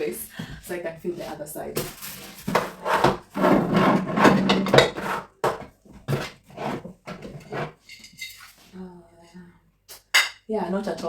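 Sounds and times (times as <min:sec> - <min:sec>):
containers scraping on shelf: 0:01.8 - 0:08.6.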